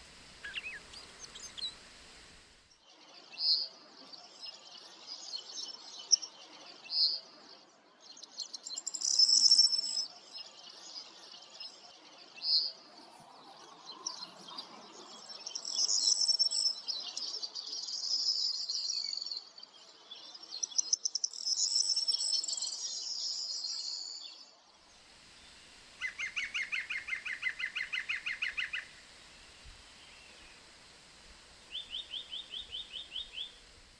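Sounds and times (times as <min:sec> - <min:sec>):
songbirds singing: 0:00.0 - 0:02.7, 0:24.9 - 0:33.9.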